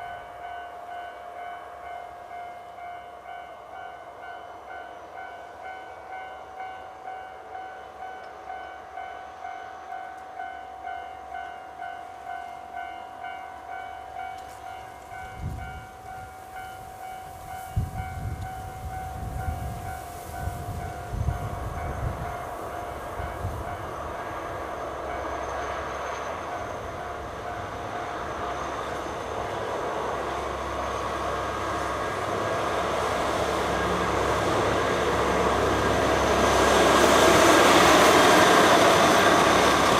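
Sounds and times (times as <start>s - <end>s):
diesel train rumble and thumps: 17.8s - 39.9s.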